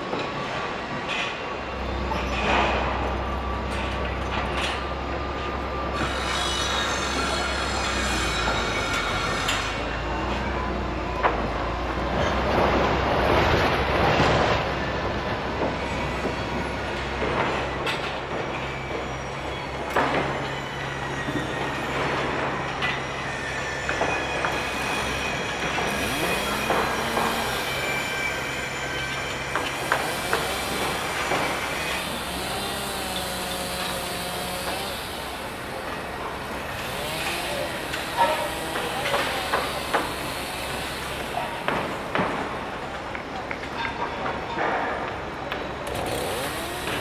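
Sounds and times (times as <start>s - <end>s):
heavy vehicle engine drone: 0.0s - 47.0s.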